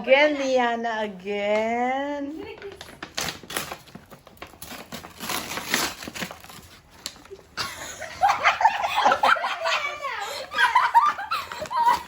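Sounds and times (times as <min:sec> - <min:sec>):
wrapping paper tearing: 0:02.4 - 0:07.3.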